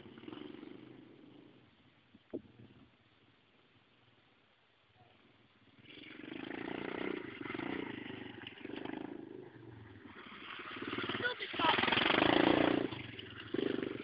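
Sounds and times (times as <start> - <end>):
small motorcycle engine running: 0.0 - 1.6, 5.7 - 14.0.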